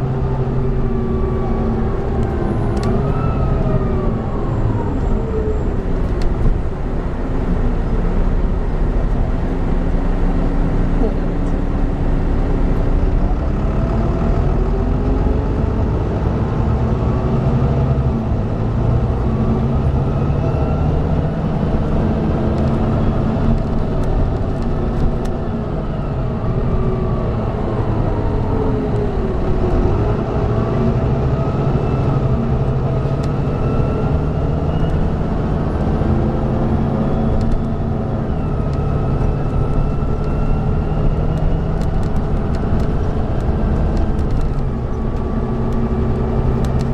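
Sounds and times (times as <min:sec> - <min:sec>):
bus diesel engine revving: 0:00.0 - 0:46.9
gear change: 0:19.1 - 0:46.9.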